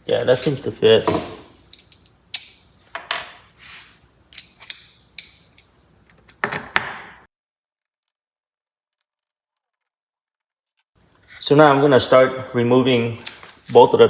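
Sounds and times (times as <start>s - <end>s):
screwdriver clicks and metal scrapes: 4.3s - 5.7s.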